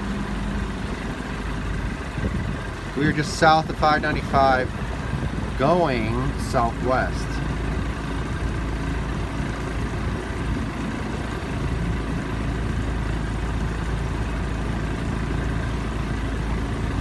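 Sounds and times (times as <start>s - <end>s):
motorboat engine humming: 0.0s - 17.0s
water noise: 0.0s - 17.0s
wind noise: 1.9s - 6.4s.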